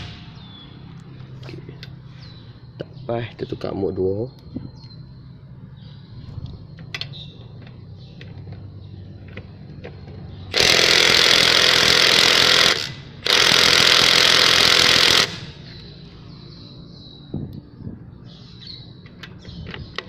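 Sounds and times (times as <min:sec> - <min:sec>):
impact driver hammering lug nut: 0:10.5 - 0:15.5.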